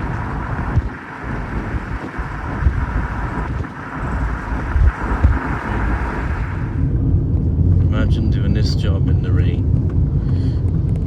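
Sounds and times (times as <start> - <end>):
low thumps: 0.0 - 7.9
vehicle engine and tyre rumble: 0.0 - 11.0.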